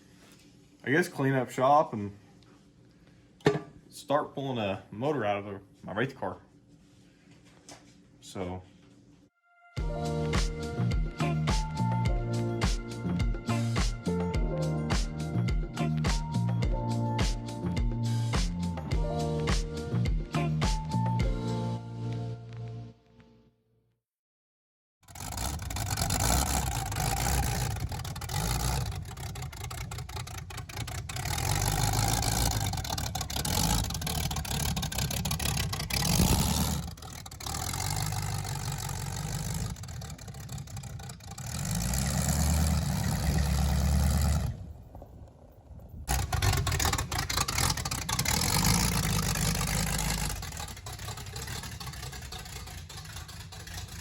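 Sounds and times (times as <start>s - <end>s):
engine running: 25.0s - 54.0s.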